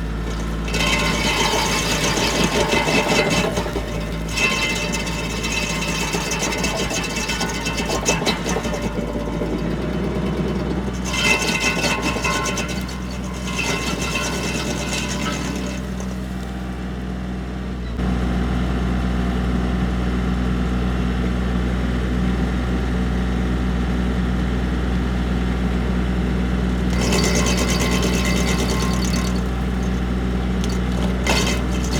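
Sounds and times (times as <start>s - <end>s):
stump grinder rattling: 0.0s - 16.8s, 25.6s - 31.9s
tractor engine running: 0.0s - 19.5s, 23.6s - 31.9s.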